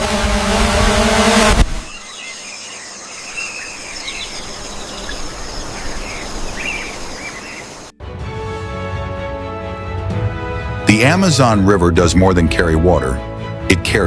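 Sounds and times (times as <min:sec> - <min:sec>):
loud rushing noise: 0:00.0 - 0:02.0.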